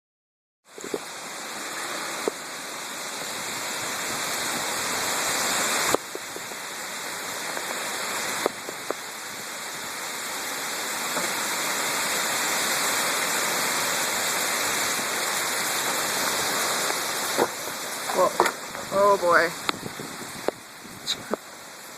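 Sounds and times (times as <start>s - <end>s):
wind rushing: 15.6s - 21.4s.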